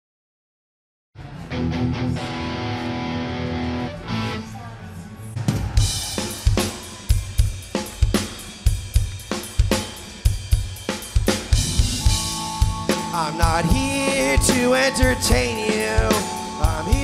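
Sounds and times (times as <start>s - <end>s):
electric guitar and bass chords: 1.3s - 4.5s, 11.5s - 17.0s
drum kit beat: 5.4s - 17.0s.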